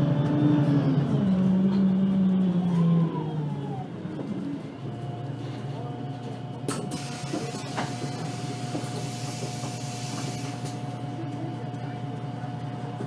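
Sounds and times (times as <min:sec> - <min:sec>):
bus engine whining: 0:00.0 - 0:13.0.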